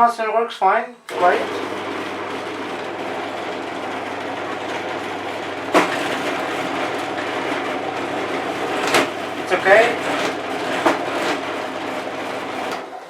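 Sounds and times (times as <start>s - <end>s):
bench drill humming: 1.1s - 13.0s.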